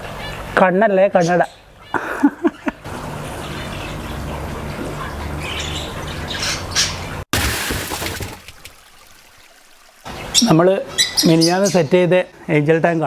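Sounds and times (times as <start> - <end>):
cockatiel squawking and chirping: 10.2 - 11.7.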